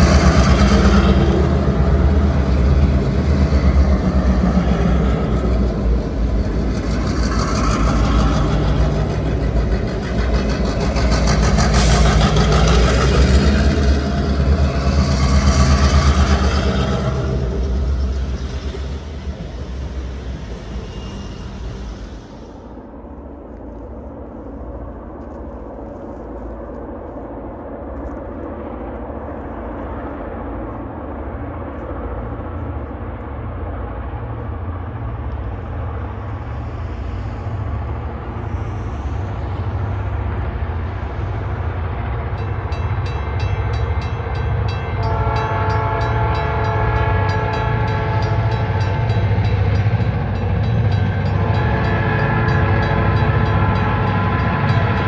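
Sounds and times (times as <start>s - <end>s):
diesel train engine rumble: 0.0s - 55.0s
train horn blast: 44.7s - 50.2s, 50.9s - 55.0s.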